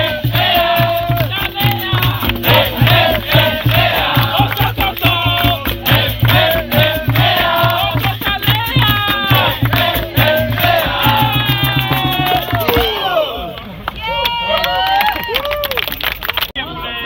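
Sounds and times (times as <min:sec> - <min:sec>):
rattling percussion: 0:00.0 - 0:12.9
hand drum beat: 0:00.0 - 0:13.0
voices singing together: 0:00.0 - 0:13.6.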